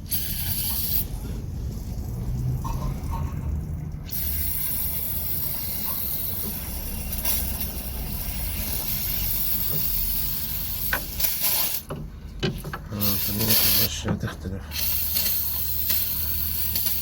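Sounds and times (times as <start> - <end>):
aerosol spray hissing: 4.1 - 11.9, 14.8 - 17.0.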